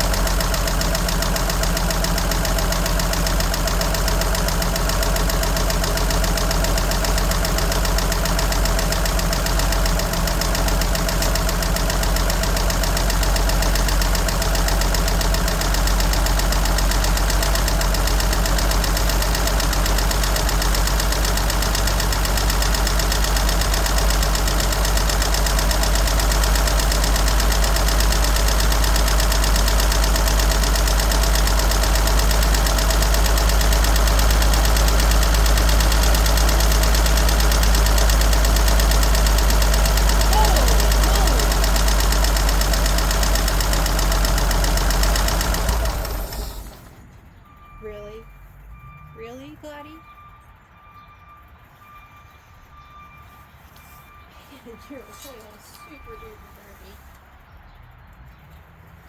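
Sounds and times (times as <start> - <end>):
rapid even ticking: 0.0 - 47.0
engine idling: 0.0 - 58.4.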